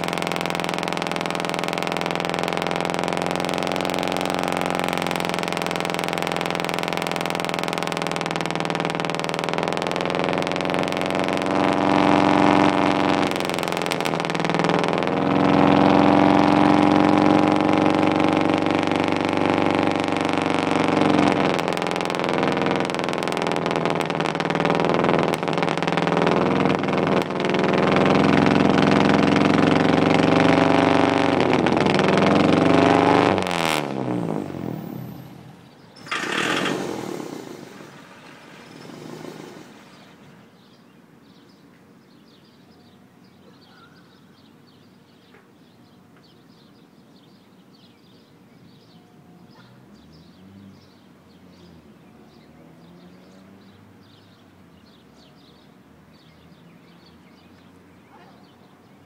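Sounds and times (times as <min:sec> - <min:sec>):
car engine running loudly: 0:00.0 - 0:40.7
engine spinning down: 0:00.0 - 0:40.8
rush of noise: 0:31.3 - 0:40.6
faint bird chirps: 0:35.5 - 0:59.0.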